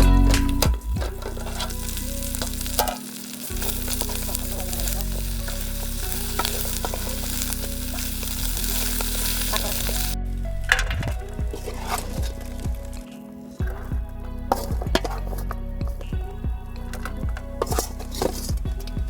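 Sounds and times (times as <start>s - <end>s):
chicken sizzling in a pan: 1.0s - 10.2s
spoon scraping and knocking pan: 10.7s - 13.0s, 14.5s - 15.6s.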